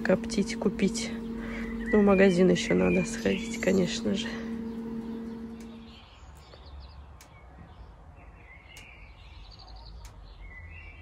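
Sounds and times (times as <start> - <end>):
low steady rumble: 0.0 - 6.1
songbirds chirping: 0.0 - 11.0.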